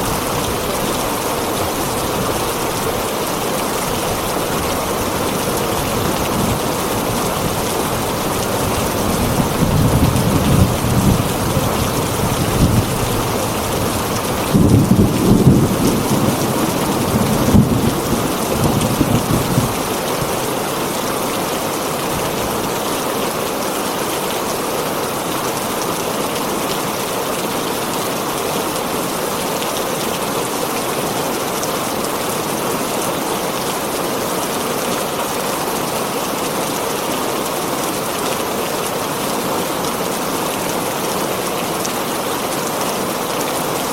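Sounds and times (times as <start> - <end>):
heavy rain on a tin roof: 0.0 - 43.9
thunder rumbling: 8.6 - 20.5.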